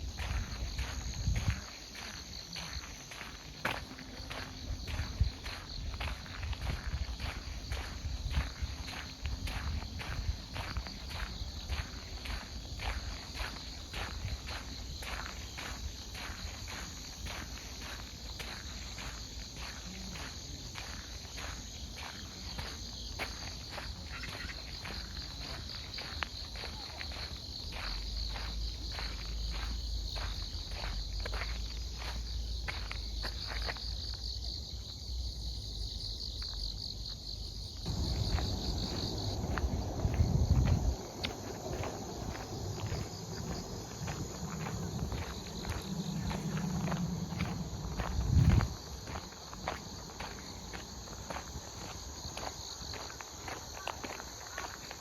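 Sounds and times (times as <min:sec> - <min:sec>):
footsteps on a path: 0:00.0 - 0:55.0
insects trilling: 0:00.0 - 0:55.0
loud low rumble: 0:37.9 - 0:48.8.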